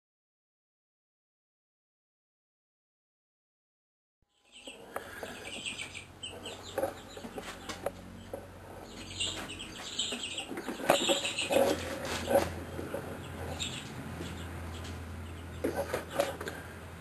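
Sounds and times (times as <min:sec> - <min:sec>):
birds calling: 0:04.3 - 0:17.0
low steady hum: 0:04.3 - 0:17.0.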